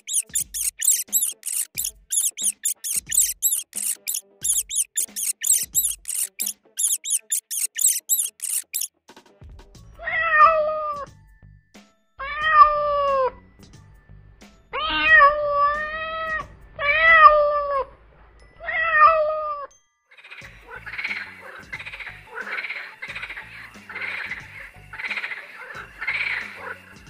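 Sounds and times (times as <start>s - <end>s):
rough rapidly repeated sound: 0.0s - 8.9s.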